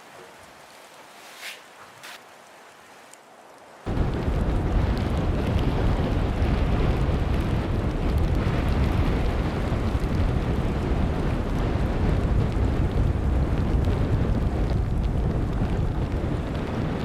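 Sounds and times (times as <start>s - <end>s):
wind buffeting microphone: 3.8s - 17.0s.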